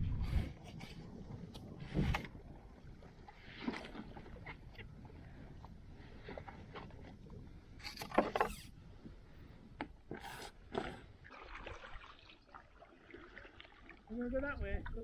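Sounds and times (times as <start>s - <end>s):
low wind rumble: 0.0s - 7.8s
kayak paddle splashing in water: 10.1s - 14.1s.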